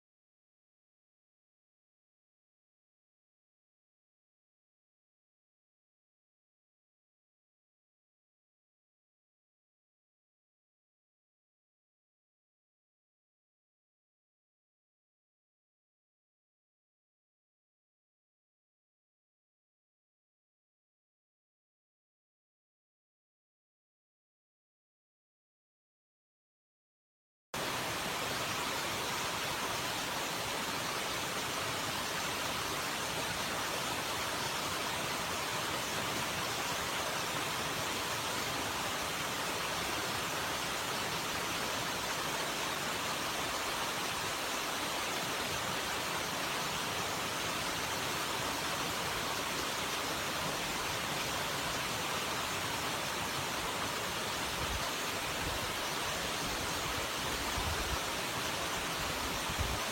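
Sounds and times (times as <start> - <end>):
running water rushing: 27.6 - 59.9.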